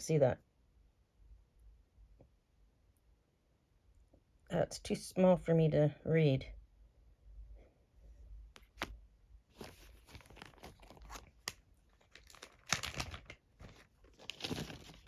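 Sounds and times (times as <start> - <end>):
plastic packaging crinkling: 8.6 - 15.0.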